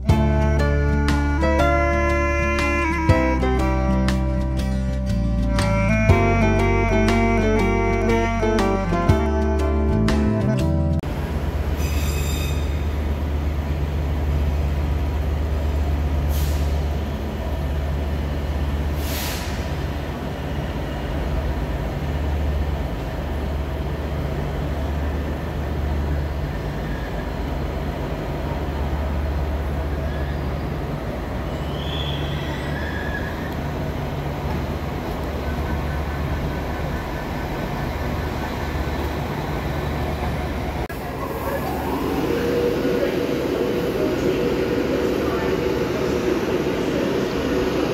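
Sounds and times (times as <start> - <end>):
high train squeal: 11.7 - 13.1, 25.9 - 27.9, 29.3 - 47.9
air hisses: 18.9 - 19.8.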